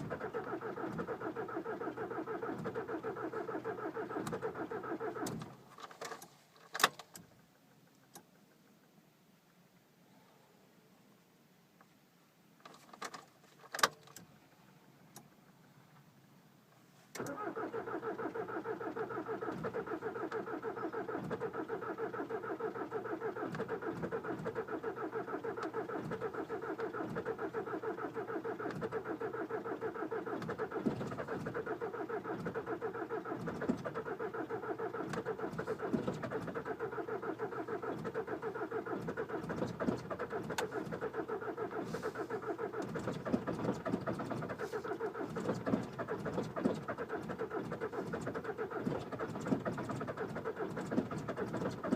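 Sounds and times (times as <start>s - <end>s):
diesel engine idling: 17.2s - 51.9s.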